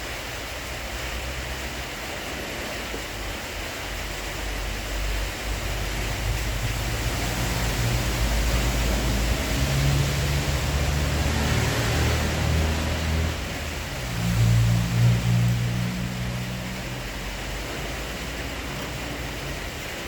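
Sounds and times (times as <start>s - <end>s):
wind gusts rumbling on microphone: 1.2s - 20.0s
storm wind rushing: 5.4s - 19.6s.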